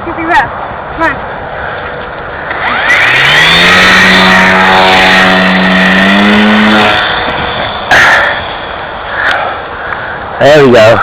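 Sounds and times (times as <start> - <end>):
model plane motor whining: 2.5 - 9.4.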